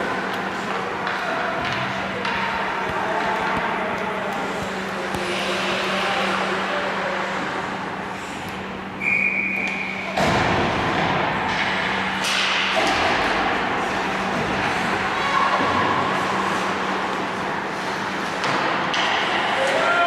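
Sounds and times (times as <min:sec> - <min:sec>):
steady low hum: 0:00.0 - 0:19.6
whistle blast: 0:09.0 - 0:10.1.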